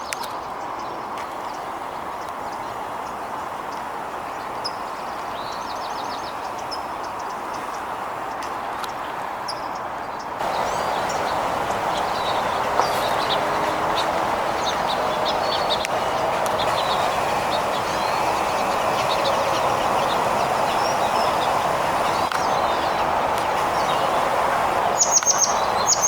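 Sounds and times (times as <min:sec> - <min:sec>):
songbirds chirping: 0:00.0 - 0:26.0
steady background noise: 0:00.0 - 0:26.0.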